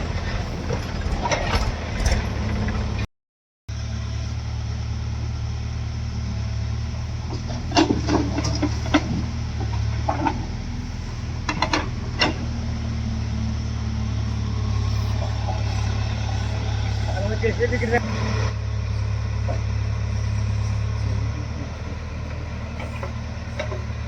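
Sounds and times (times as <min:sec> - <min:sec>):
diesel engine idling: 0:03.7 - 0:24.0
sharp knocks and clanks: 0:11.5 - 0:12.6, 0:22.2 - 0:24.0.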